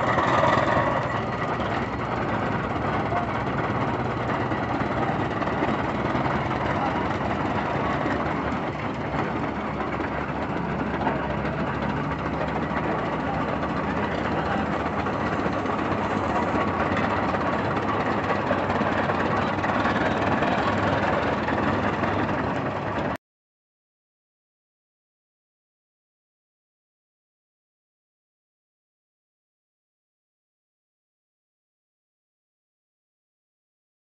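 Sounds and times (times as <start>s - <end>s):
engine running: 0.0s - 23.2s.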